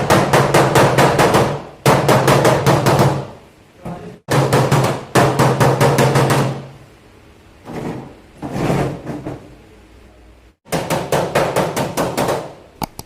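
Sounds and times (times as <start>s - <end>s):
hammer on sheet metal: 0.0s - 3.4s, 4.3s - 6.7s, 10.7s - 12.6s.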